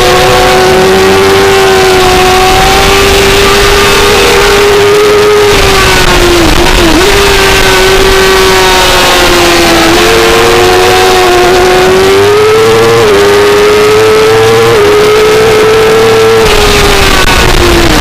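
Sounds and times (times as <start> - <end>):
motorcycle engine at high revs: 0.0 - 18.0.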